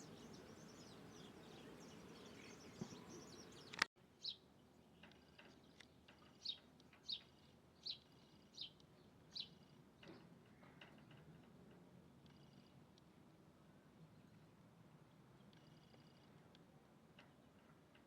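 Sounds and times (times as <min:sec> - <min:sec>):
bird chirping: 0:00.0 - 0:10.8, 0:15.4 - 0:16.4.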